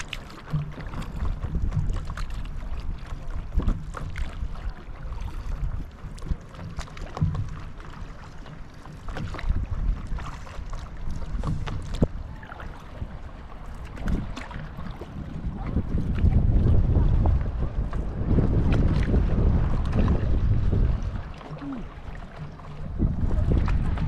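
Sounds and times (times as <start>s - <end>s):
water splashing and lapping: 0.0s - 24.0s
wind buffeting microphone: 0.0s - 24.0s.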